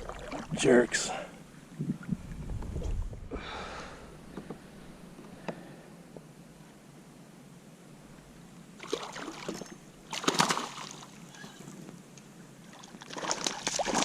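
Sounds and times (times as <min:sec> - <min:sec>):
water splashing beside kayak: 0:00.0 - 0:01.1, 0:08.8 - 0:11.4, 0:12.6 - 0:14.0.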